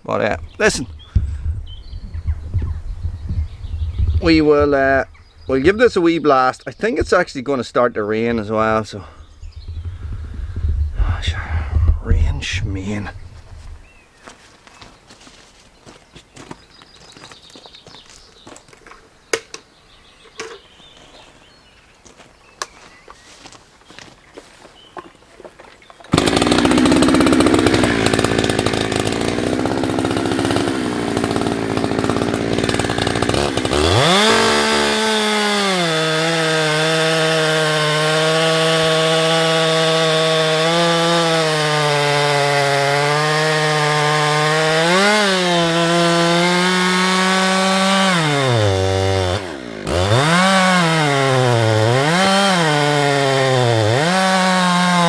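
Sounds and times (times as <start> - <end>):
chainsaw cutting wood: 26.0 - 55.0.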